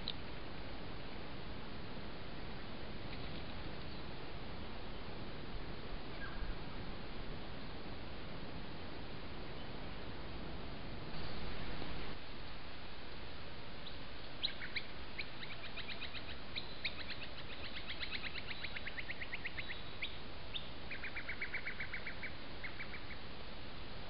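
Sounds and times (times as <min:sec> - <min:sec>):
steady hiss: 0:00.0 - 0:24.0
birds calling in repeated notes: 0:06.1 - 0:06.6, 0:13.8 - 0:23.3.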